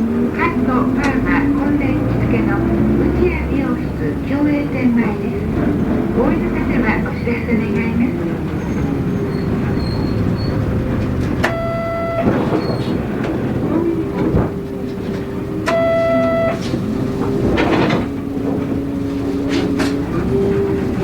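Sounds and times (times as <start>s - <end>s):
bus engine running: 0.0s - 21.0s
road noise: 0.0s - 21.0s
short buzzer tones: 11.4s - 12.6s, 15.6s - 16.6s.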